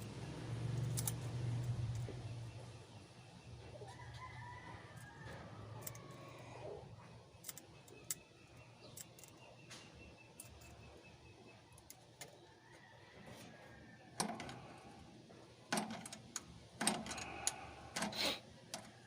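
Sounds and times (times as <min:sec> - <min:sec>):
rooster crowing: 0:03.8 - 0:06.7, 0:12.5 - 0:14.2.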